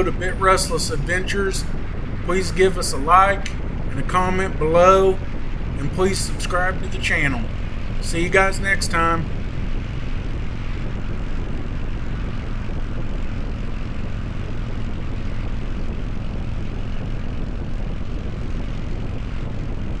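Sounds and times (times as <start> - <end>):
motorcycle engine droning: 0.0 - 10.6
wind rushing noise: 0.0 - 14.4.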